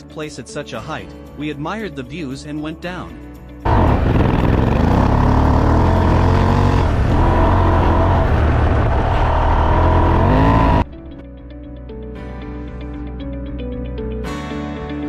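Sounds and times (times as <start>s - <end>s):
motorcycle engine revving: 3.6s - 11.0s
heavy rushing noise: 3.7s - 10.9s.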